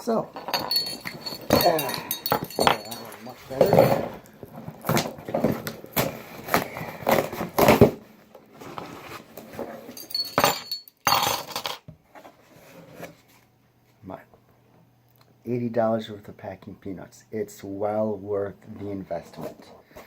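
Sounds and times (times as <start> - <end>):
light clinking: 0.3 - 4.0, 10.0 - 11.1
box flaps and packing rustling: 3.2 - 8.0.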